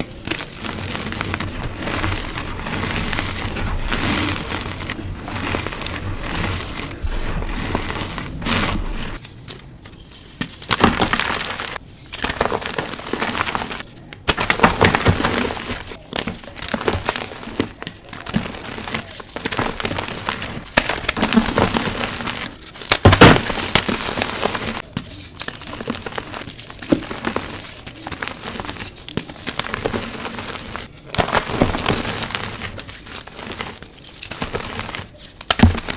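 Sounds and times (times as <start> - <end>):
chalk being crushed: 0.0 - 35.9.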